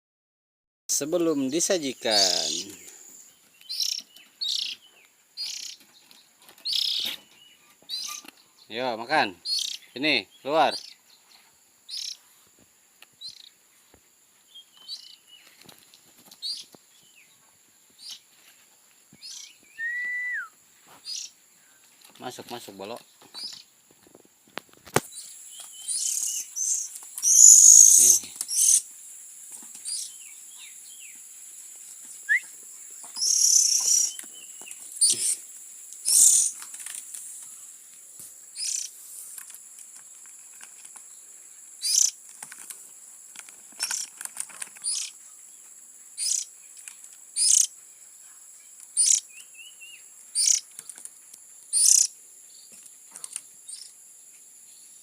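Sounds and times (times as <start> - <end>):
steady high-pitched hiss: 0.9 - 55.0
bird chick begging calls: 25.9 - 28.8, 33.2 - 34.2, 36.0 - 36.6, 51.8 - 52.1.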